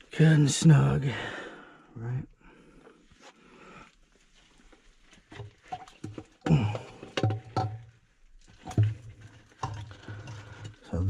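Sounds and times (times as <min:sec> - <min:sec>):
knocks and clatter of pump fittings: 0:05.2 - 0:11.0.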